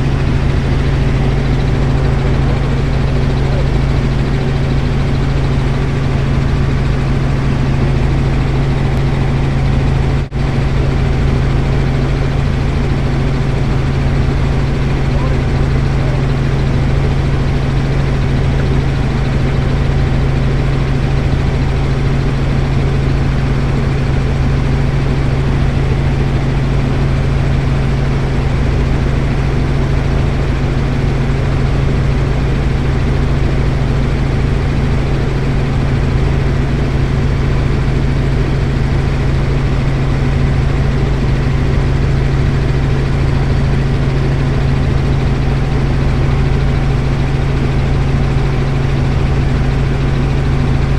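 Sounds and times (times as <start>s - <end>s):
helicopter engine and rotor drone: 0.0s - 50.9s.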